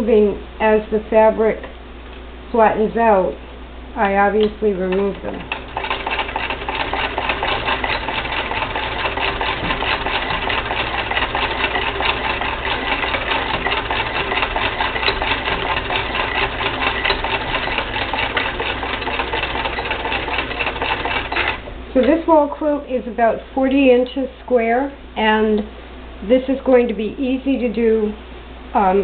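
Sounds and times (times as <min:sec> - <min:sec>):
hand-crank sewing machine clattering: 0:04.9 - 0:21.6.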